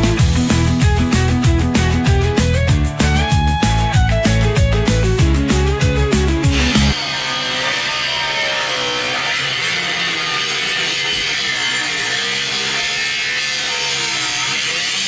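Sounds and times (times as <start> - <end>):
power tool cutting metal: 6.0 - 15.0.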